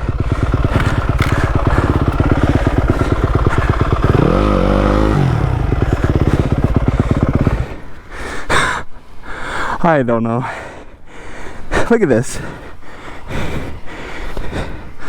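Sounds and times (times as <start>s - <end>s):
motorcycle engine at low revs: 0.0s - 8.1s.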